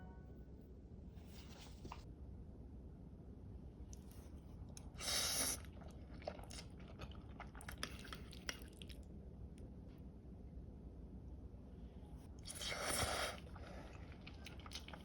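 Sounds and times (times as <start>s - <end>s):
soft chewing: 3.8s - 10.1s, 12.2s - 15.0s.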